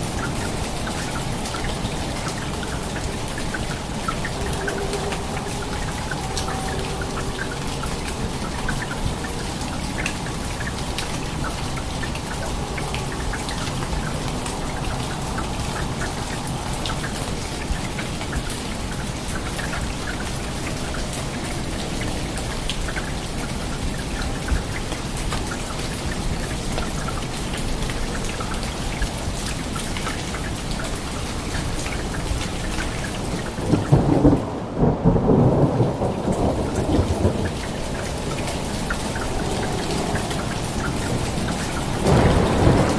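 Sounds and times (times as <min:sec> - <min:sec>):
steady rain: 0:00.0 - 0:42.9
thunder rolling: 0:33.6 - 0:42.9.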